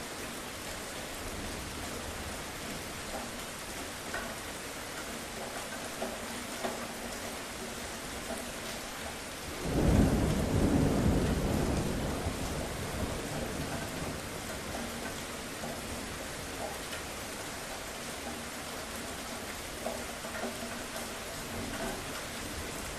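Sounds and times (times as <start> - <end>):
steady rain falling: 0.0 - 22.9
thunder rolling: 9.6 - 14.6.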